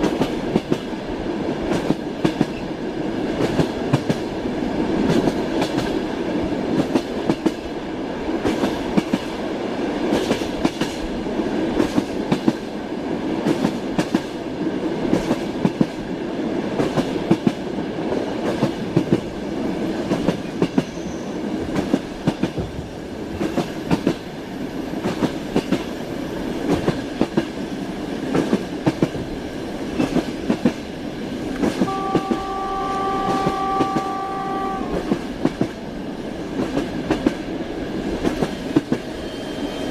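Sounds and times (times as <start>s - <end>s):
train horn: 31.8s - 35.2s.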